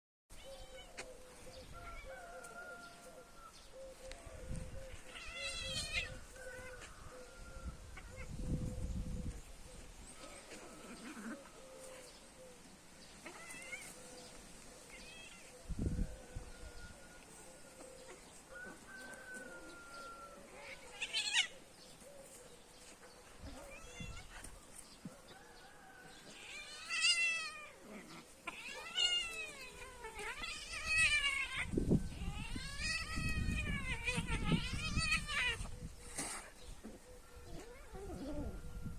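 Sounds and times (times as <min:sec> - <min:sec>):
cat meowing: 0:05.1 - 0:06.6, 0:28.5 - 0:35.7.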